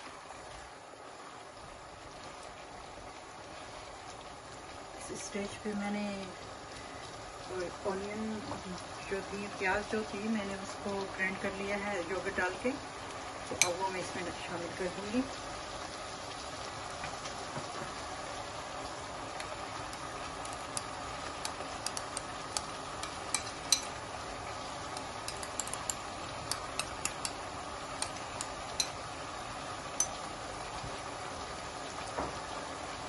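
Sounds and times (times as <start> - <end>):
chicken sizzling in oil: 0.0 - 33.0
spoon scraping and tapping bowl: 20.4 - 23.9, 25.0 - 27.4, 28.0 - 29.0, 30.0 - 30.2.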